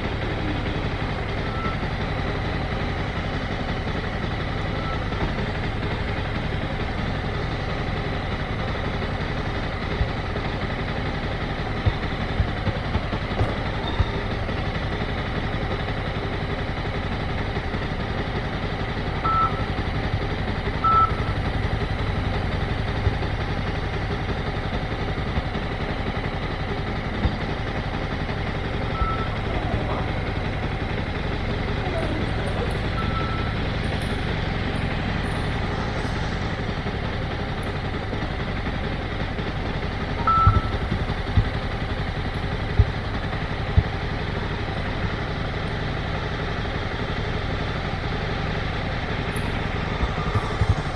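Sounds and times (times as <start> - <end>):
motorcycle engine running: 0.0 - 50.9
short beeps: 1.4 - 1.9, 19.3 - 19.6, 20.8 - 21.3, 28.9 - 29.4, 32.9 - 33.6, 40.2 - 40.8.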